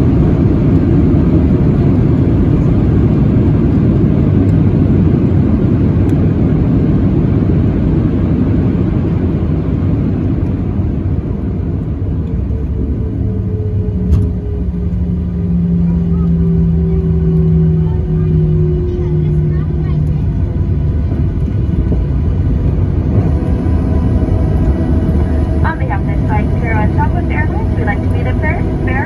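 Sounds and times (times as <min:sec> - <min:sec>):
loud low rumble of aircraft engines: 0:00.0 - 0:29.0
steady hum: 0:22.6 - 0:29.0.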